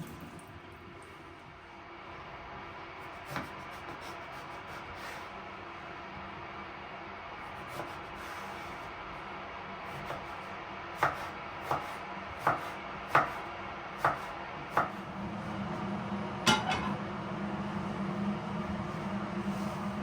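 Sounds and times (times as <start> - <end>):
knife chopping on cutting board: 3.2 - 4.1, 11.0 - 13.4, 14.0 - 15.0
steady low hum: 14.5 - 20.0.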